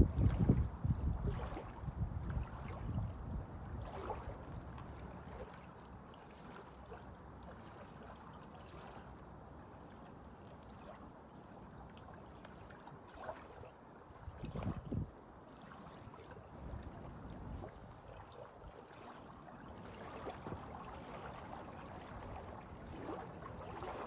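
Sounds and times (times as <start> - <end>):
waves lapping: 0.0 - 2.9, 3.7 - 9.0, 15.5 - 24.0.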